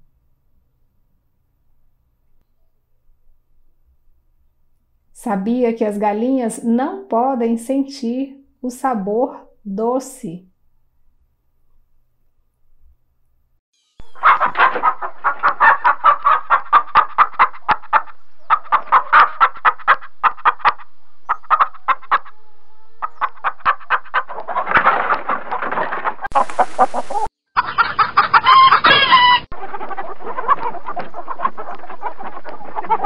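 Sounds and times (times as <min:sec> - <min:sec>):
chickens clucking: 0:14.0 - 0:33.0
rooster crowing: 0:27.6 - 0:29.5.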